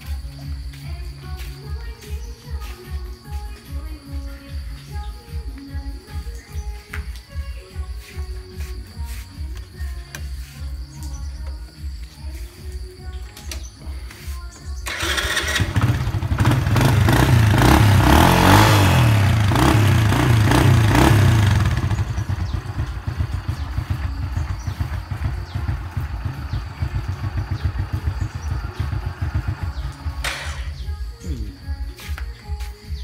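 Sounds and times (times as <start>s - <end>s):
motorcycle engine revving and idling: 0.0s - 31.9s.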